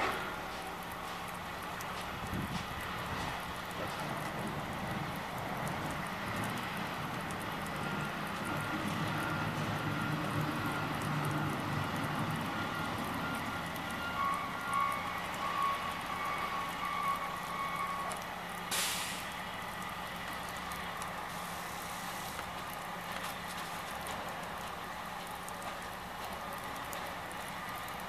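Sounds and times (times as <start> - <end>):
heavy truck engine running: 0.0 - 28.0
air brakes hissing: 18.7 - 19.4.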